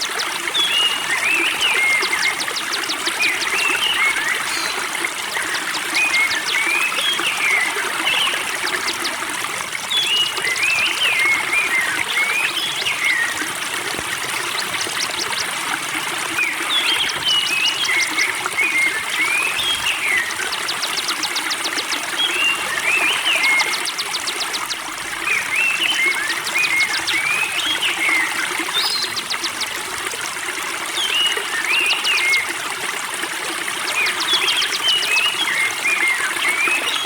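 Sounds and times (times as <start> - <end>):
water trickling and gurgling: 0.0 - 37.0.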